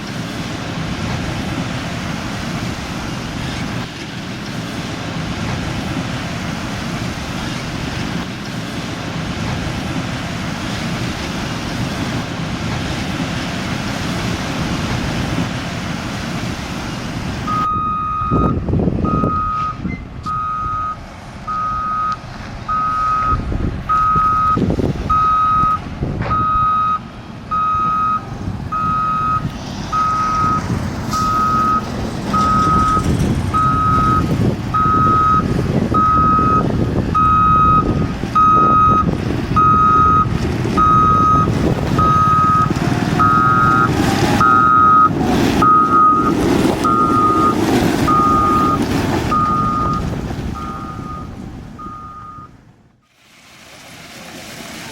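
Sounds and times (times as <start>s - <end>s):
diesel engine running: 0.0s - 53.1s
backup alarm beeping: 17.5s - 30.6s, 31.2s - 31.8s, 32.4s - 52.6s.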